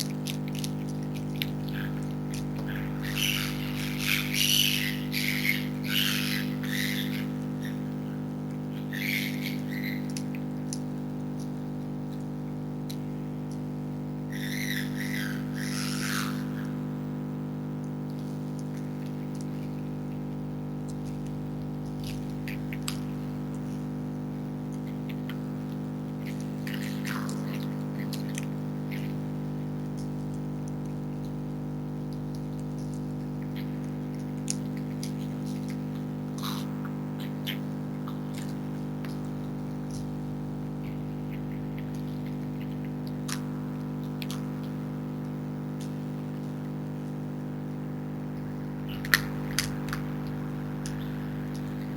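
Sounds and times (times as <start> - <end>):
foxes chewing food: 0.0 - 17.0, 17.8 - 51.9
freezer electrical hum: 0.0 - 51.9
bird chirps: 2.7 - 7.9, 8.8 - 10.1, 14.3 - 16.7.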